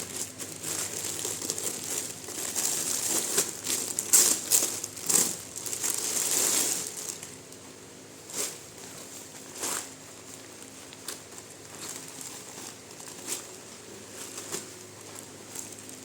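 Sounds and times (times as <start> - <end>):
packaging crinkling by hand: 0.0 - 7.6, 8.3 - 16.0.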